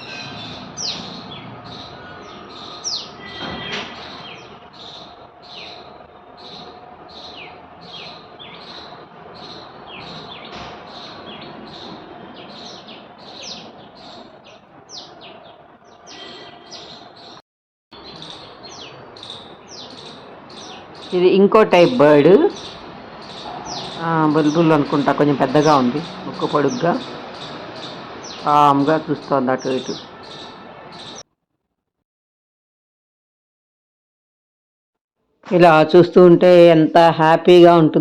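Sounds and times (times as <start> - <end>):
birds chirping faintly: 0.0 - 17.4, 18.0 - 31.2
small bird calling: 0.0 - 17.4, 18.0 - 31.2.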